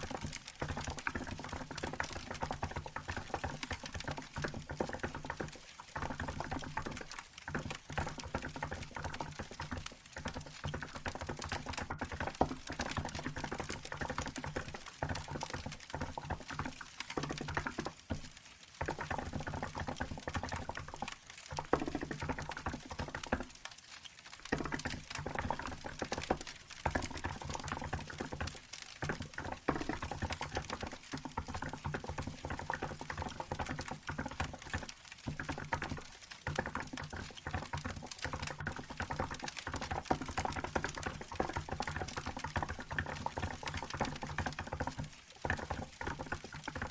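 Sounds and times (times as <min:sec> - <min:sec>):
mechanical keyboard typing: 0:24.4 - 0:46.9.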